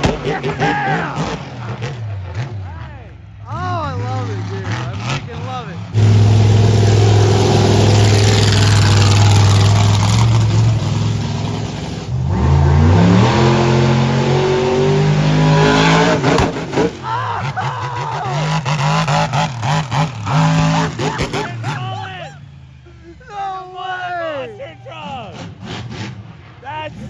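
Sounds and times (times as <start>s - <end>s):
voices: 0.0s - 6.0s, 17.0s - 25.5s, 26.6s - 27.0s
racing car engine revving: 0.0s - 22.3s, 25.1s - 27.0s
engine accelerating through gears: 5.9s - 22.0s.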